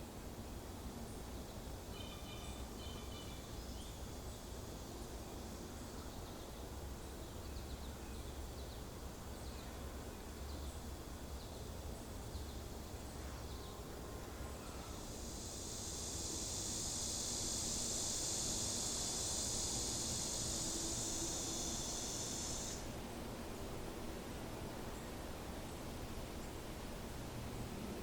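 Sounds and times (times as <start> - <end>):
high insect buzz: 14.2 - 23.0.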